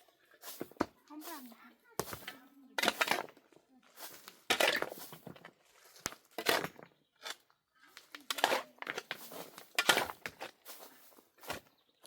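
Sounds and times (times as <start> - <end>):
crunching and rustling: 0.4 - 11.7.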